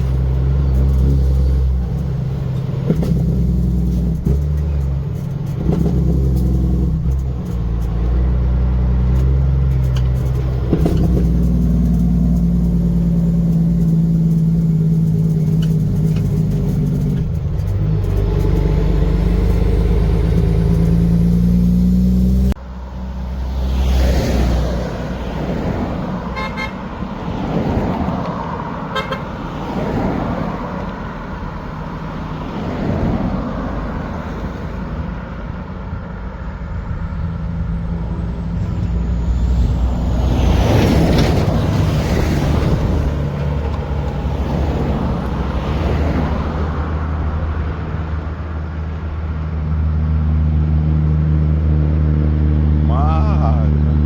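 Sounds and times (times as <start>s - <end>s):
passing traffic: 0.0s - 54.0s
truck engine rumble: 0.0s - 54.0s
truck horn blasts: 26.3s - 26.9s, 28.9s - 29.4s.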